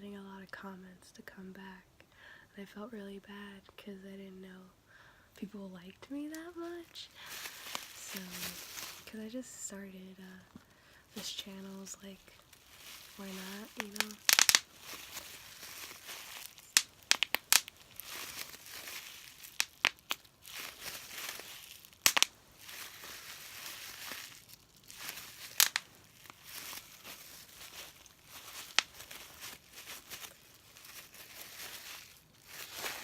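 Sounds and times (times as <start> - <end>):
plastic wrapping crinkling: 6.1 - 9.3, 10.6 - 33.0.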